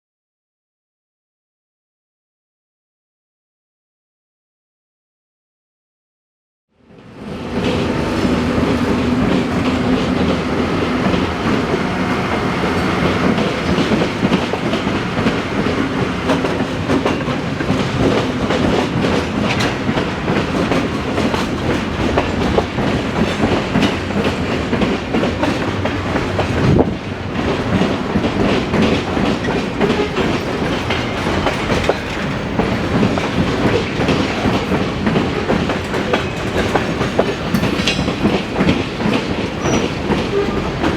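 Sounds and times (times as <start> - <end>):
train wheels clacking: 7.5 - 40.9.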